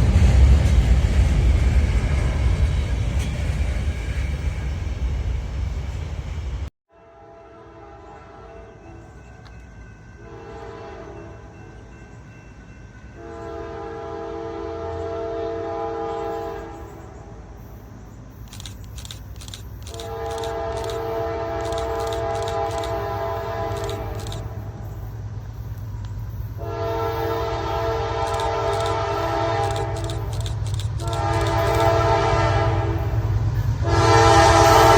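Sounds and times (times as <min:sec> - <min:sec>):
train rumbling: 0:00.0 - 0:06.7, 0:07.4 - 0:34.9
locomotive air horn blasts: 0:06.9 - 0:08.8, 0:13.2 - 0:16.8, 0:19.9 - 0:24.4, 0:26.6 - 0:30.2, 0:31.0 - 0:34.9.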